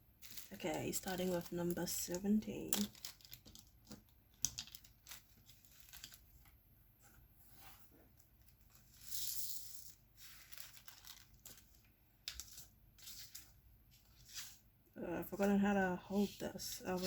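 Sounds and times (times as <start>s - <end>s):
light plastic clicks and crinkles: 0.2s - 6.6s, 10.4s - 14.2s
tearing rustle of packaging: 8.6s - 14.6s.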